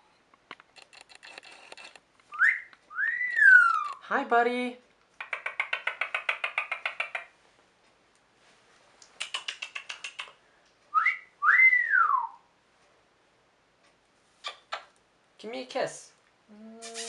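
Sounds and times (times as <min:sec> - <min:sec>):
parrot wolf whistle: 0:02.3 - 0:04.0, 0:11.0 - 0:12.4
parrot pulsed chatter: 0:02.6 - 0:04.1, 0:05.2 - 0:07.3.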